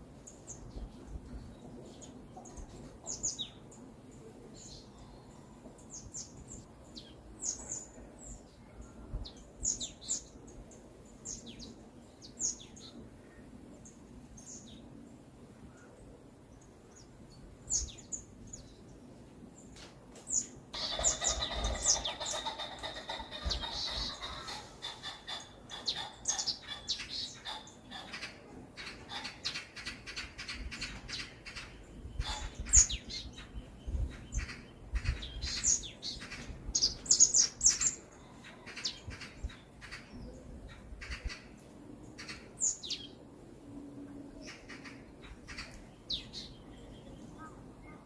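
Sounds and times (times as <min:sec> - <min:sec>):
small birds chirping: 0:19.6 - 0:41.5.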